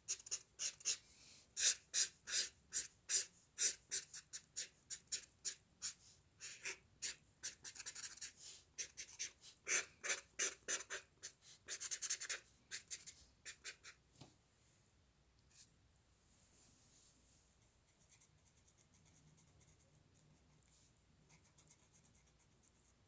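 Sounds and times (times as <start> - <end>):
drawing tool scratching paper: 6.6 - 11.1.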